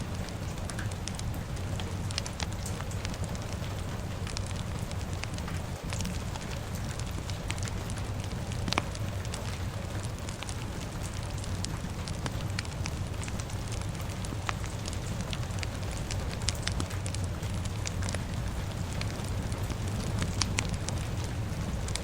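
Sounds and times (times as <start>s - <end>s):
fire crackling and popping: 0.0s - 22.0s
low rumble of rain: 0.0s - 22.0s.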